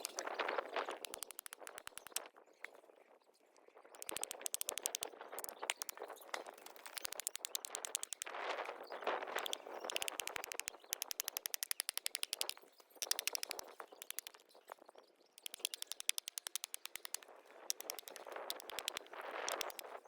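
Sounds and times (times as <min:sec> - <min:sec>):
campfire crackling and popping: 0:00.0 - 0:02.3, 0:04.0 - 0:06.0, 0:06.6 - 0:08.4, 0:09.3 - 0:14.4, 0:15.4 - 0:20.0.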